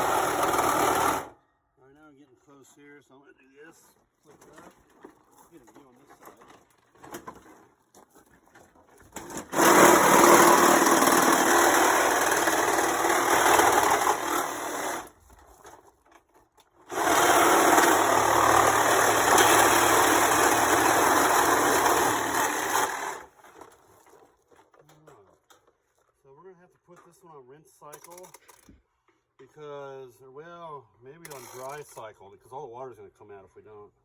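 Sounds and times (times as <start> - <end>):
power saw cutting metal: 0.0 - 1.3, 9.2 - 15.1, 16.9 - 23.4.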